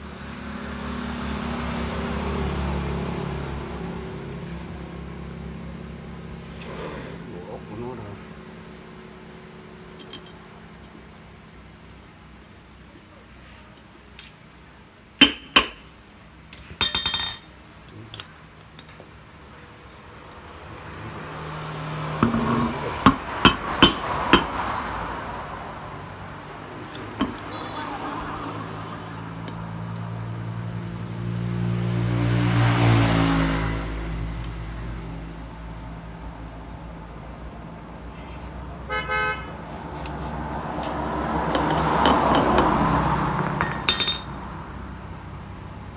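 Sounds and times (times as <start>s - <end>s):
motor vehicle passing: 0.0s - 9.6s, 19.8s - 45.9s
small metal parts clinking: 16.5s - 17.6s, 43.6s - 44.4s.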